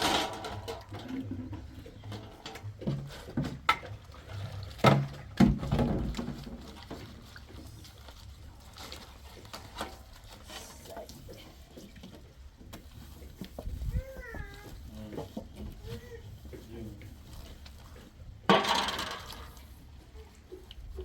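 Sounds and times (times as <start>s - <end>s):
sharp knocks and clatters: 4.8s - 7.1s, 18.4s - 19.6s.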